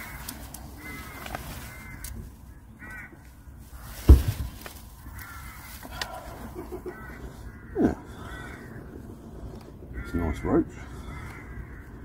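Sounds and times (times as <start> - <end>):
bird calling: 0.0 - 12.0.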